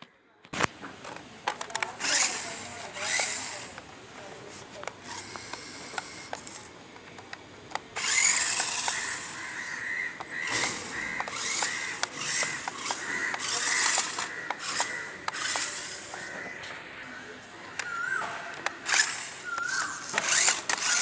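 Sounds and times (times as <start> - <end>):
small electric motor whining: 2.0 - 3.8, 5.0 - 6.7, 8.0 - 16.5, 17.8 - 21.0
sharp clicks: 4.8 - 9.2, 10.2 - 16.3, 17.7 - 21.0.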